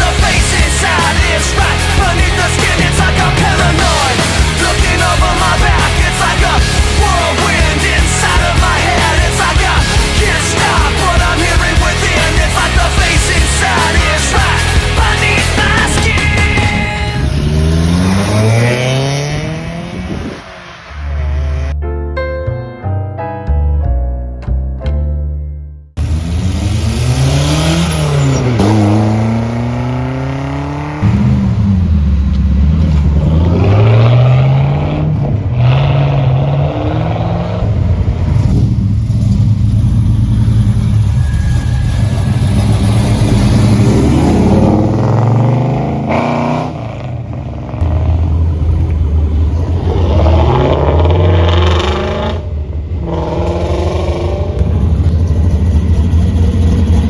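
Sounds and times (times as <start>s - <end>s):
engine idling: 0.0s - 17.9s, 37.7s - 44.8s, 54.4s - 57.0s
car engines revving: 0.0s - 21.8s, 26.0s - 57.0s.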